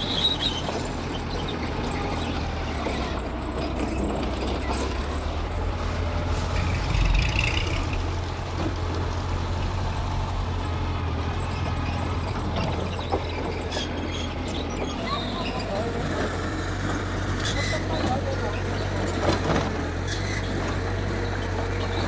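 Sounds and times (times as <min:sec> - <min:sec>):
bulldozer diesel engine running: 0:00.0 - 0:22.0.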